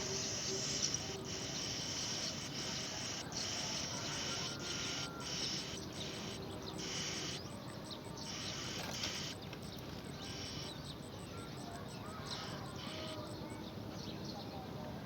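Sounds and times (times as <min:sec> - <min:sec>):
insects buzzing chorus: 0:00.0 - 0:14.0.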